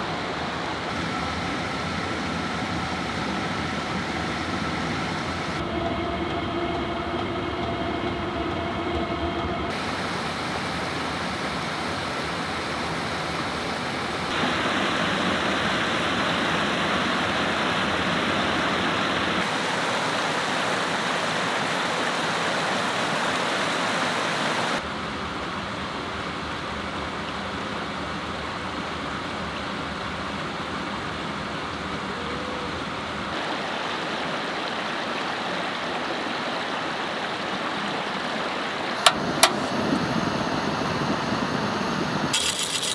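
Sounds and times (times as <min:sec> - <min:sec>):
waterfall and river rushing: 0:00.0 - 0:05.9, 0:09.7 - 0:24.9, 0:33.2 - 0:42.4
hum with held tones: 0:00.9 - 0:19.5, 0:39.0 - 0:42.9.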